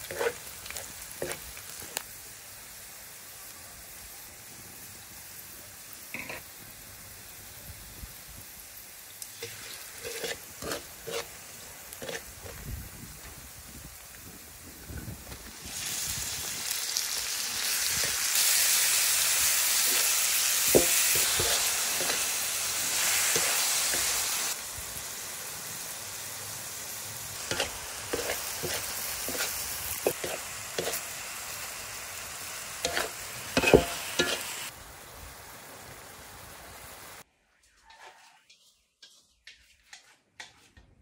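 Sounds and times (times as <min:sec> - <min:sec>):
meat sizzling in oil: 0:00.0 - 0:37.3
stirring clicks and scrapes: 0:09.4 - 0:11.3, 0:12.0 - 0:12.6.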